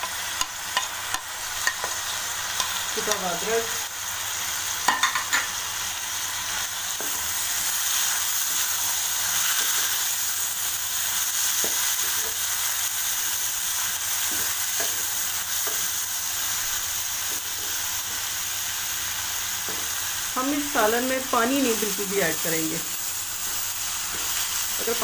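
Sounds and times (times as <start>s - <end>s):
spatula scraping wok: 0.0s - 18.4s
vegetables sizzling in oil: 0.0s - 25.0s.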